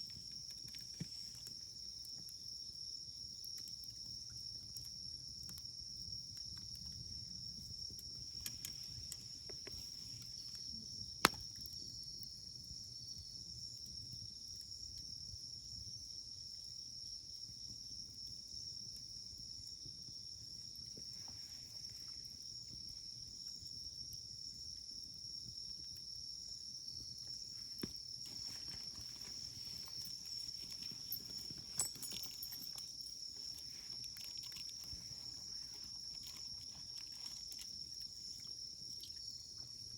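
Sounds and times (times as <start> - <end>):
wood fire burning: 0.0 - 12.8, 18.6 - 39.9
insect chirring: 0.0 - 39.9
firewood popping: 6.4 - 12.0, 27.0 - 39.7.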